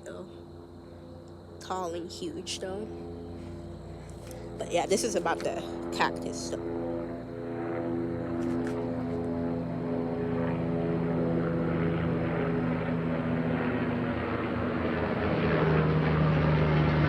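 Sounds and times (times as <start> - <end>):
helicopter flying overhead: 0.0 - 17.0.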